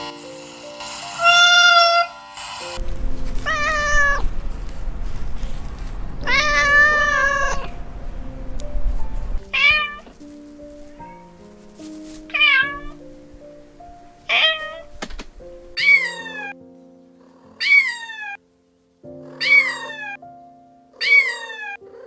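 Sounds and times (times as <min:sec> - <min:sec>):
soft background music: 0:00.0 - 0:22.0
cat meowing: 0:01.2 - 0:02.1, 0:03.4 - 0:04.3, 0:06.2 - 0:07.8, 0:09.5 - 0:10.1, 0:12.3 - 0:13.0, 0:14.3 - 0:15.0, 0:15.8 - 0:16.6, 0:17.6 - 0:18.4, 0:19.3 - 0:20.2, 0:21.0 - 0:22.0.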